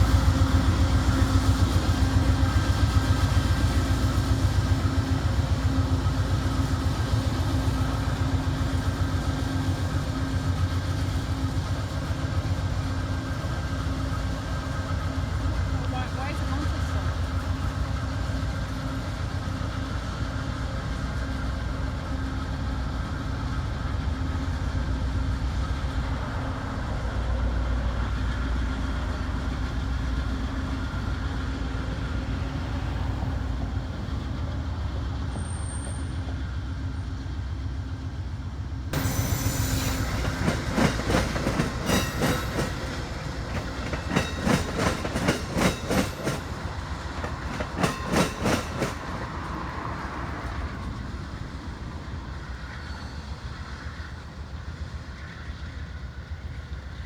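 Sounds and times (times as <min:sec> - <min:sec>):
train rumble and engine hum: 0:00.0 - 0:57.0
train wheels clacking on rail joints: 0:39.0 - 0:51.2.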